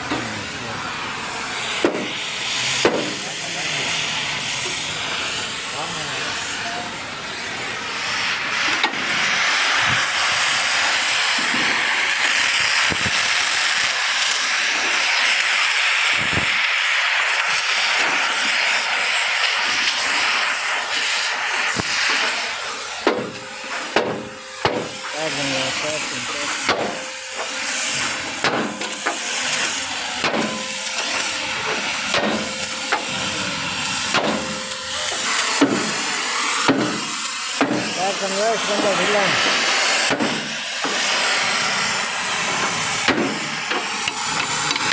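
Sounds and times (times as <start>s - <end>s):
loud steady hiss: 0.0s - 44.9s
hammer striking metal: 1.8s - 2.2s, 2.8s - 3.2s, 23.0s - 25.2s, 26.5s - 29.3s, 30.2s - 38.0s.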